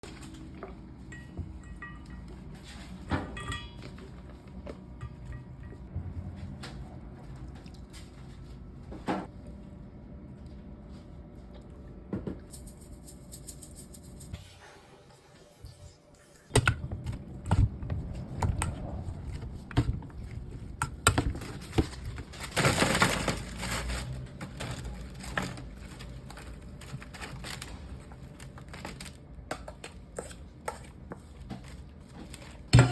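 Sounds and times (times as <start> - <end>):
food crunching and rustling: 17.6 - 32.7.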